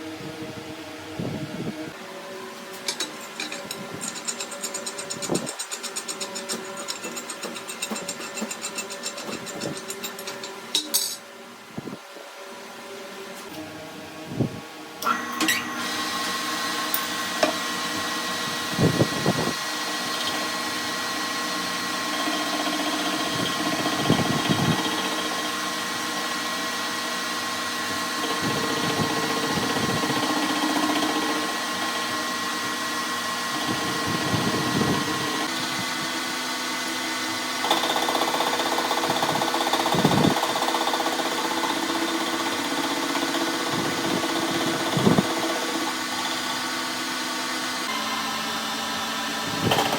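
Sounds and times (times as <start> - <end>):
power tool grinding metal: 15.1 - 37.6.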